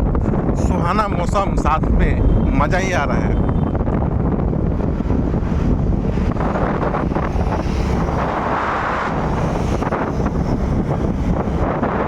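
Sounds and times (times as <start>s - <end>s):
road noise: 0.0s - 12.0s
wind buffeting microphone: 0.0s - 12.0s
motorcycle engine: 3.5s - 11.6s.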